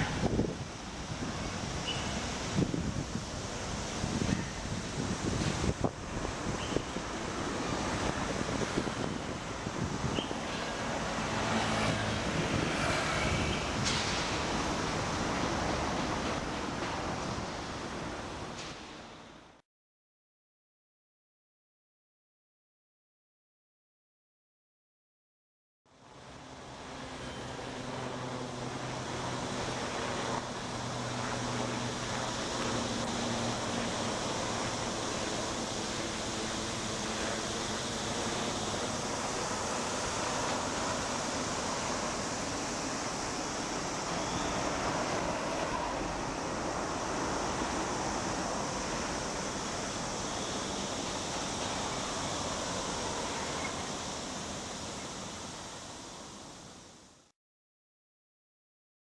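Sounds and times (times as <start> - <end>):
city road traffic: 0.0 - 19.6, 25.9 - 57.3
construction site noise: 0.0 - 19.6, 25.9 - 57.3
vehicle engine humming: 26.2 - 54.6.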